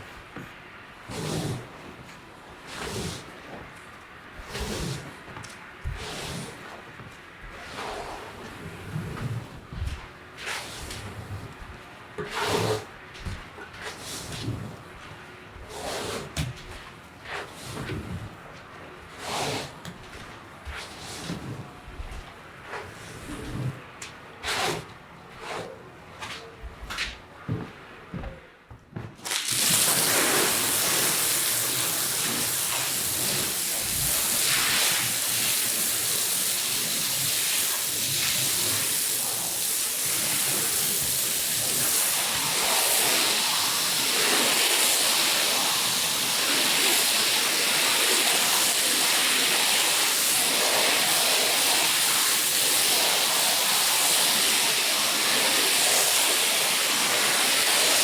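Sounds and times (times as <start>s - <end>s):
water jet spraying onto carpet: 29.3s - 58.0s.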